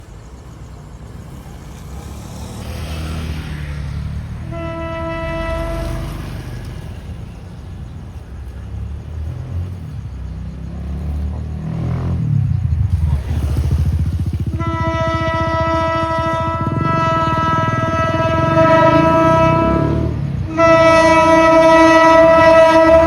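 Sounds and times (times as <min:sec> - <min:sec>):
locomotive engine rumble: 0:00.0 - 0:23.0
train horn blast: 0:04.4 - 0:06.9, 0:14.4 - 0:23.0.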